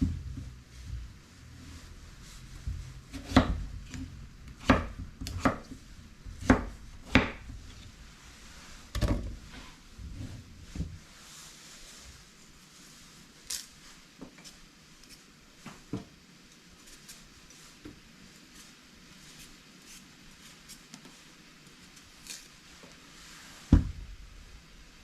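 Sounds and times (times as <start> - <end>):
knife chopping on a cutting board: 2.6 - 5.7, 6.4 - 7.5.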